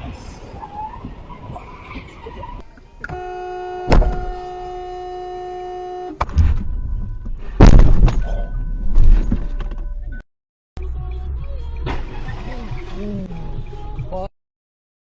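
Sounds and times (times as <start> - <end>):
car horn sounding: 3.0 - 7.0
crash with heavy impacts: 7.6 - 8.4
loud bang: 7.6 - 9.2.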